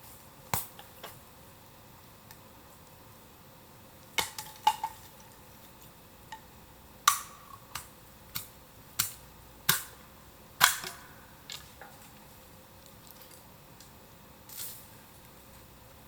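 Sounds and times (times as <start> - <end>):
bamboo fire crackling and popping: 0.0 - 16.0.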